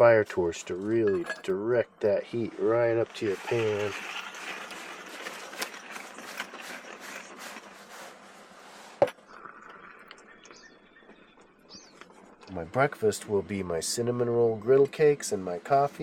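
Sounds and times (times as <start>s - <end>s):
log fire crackling and hissing: 2.0s - 9.7s.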